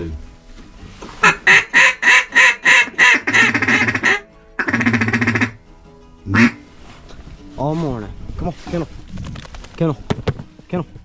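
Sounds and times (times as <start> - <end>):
duck call quacking: 1.2 - 5.6, 6.3 - 6.6.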